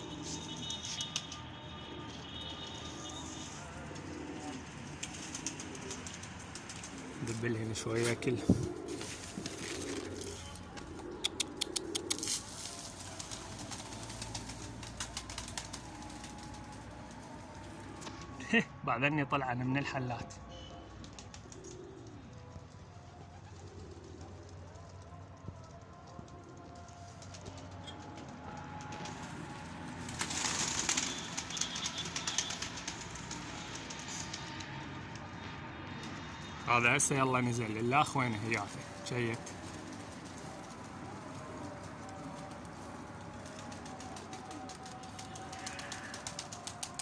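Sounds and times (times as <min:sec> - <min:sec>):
pigeons cooing: 0:01.9 - 0:16.8, 0:21.0 - 0:25.0, 0:38.1 - 0:47.0
birds pecking taps: 0:10.7 - 0:12.4.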